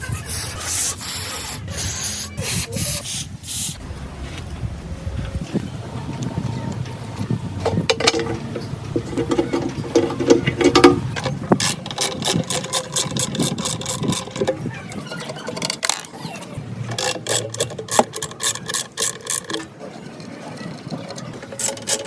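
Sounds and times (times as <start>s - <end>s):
hand tools knocking on metal: 7.7s - 16.0s, 16.9s - 22.0s
rapid sharp clicks: 11.6s - 14.6s, 16.9s - 19.7s, 21.2s - 22.0s.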